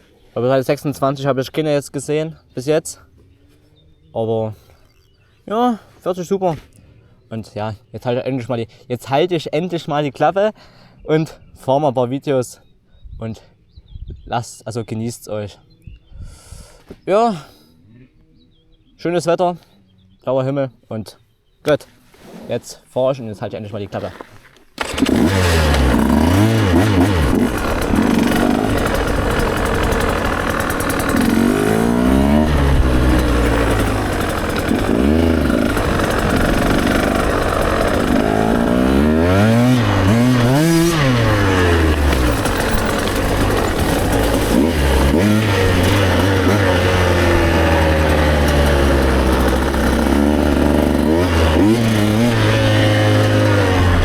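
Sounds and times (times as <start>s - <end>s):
motorcycle engine revving: 24.8s - 54.0s.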